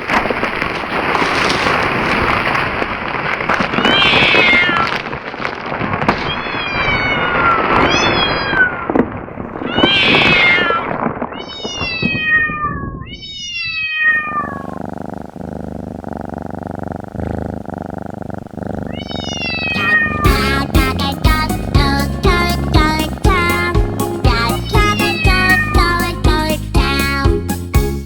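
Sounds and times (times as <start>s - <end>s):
kitten meowing: 3.8s - 5.0s, 6.2s - 8.8s, 9.6s - 15.8s, 18.4s - 26.1s
loud rough noise: 14.6s - 26.1s.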